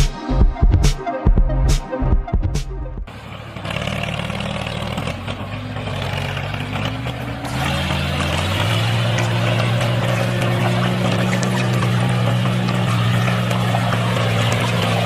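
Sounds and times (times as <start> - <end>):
electronic music: 0.0 - 3.1
small tractor engine running: 3.1 - 15.0.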